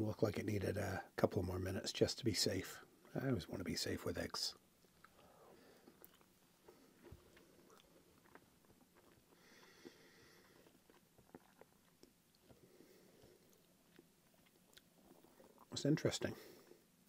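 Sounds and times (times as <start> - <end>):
faint chewing: 4.7 - 16.9
breath through the nose: 9.3 - 10.8.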